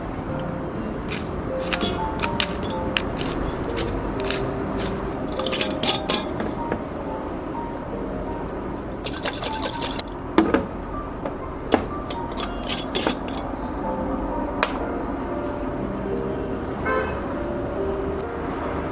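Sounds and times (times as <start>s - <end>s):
soft background music: 0.0s - 18.9s
kitchen utensils and dishes clinking: 1.1s - 6.6s, 9.0s - 10.1s, 11.8s - 13.5s.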